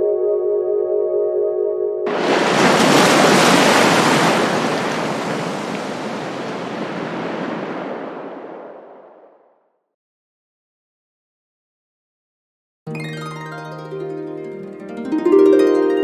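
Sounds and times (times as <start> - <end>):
ocean surf rushing: 2.1 - 9.2.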